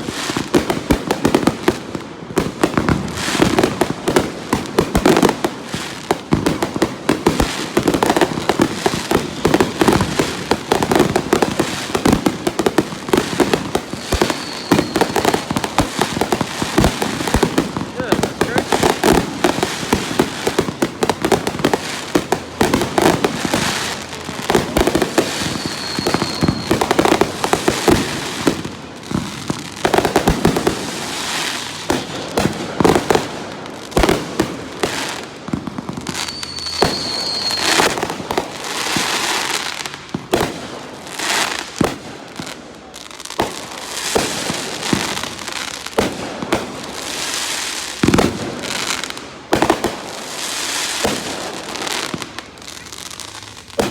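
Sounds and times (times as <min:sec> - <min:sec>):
fireworks bangs: 0:00.0 - 0:53.9
fireworks crackling: 0:00.0 - 0:53.9
high firework whistle: 0:13.8 - 0:16.9, 0:25.1 - 0:28.1, 0:36.0 - 0:39.5.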